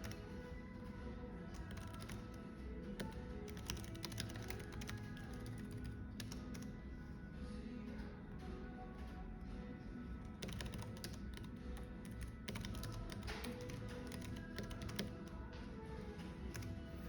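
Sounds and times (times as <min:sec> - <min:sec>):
computer keyboard typing: 0:00.0 - 0:06.8, 0:10.2 - 0:17.0
soft background music: 0:00.0 - 0:17.0.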